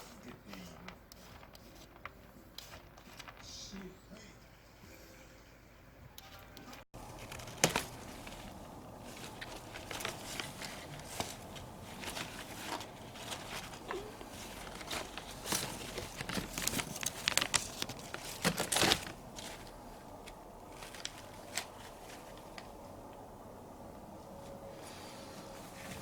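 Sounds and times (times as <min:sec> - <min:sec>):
rustling and crinkling: 0:00.0 - 0:03.9, 0:07.0 - 0:26.0.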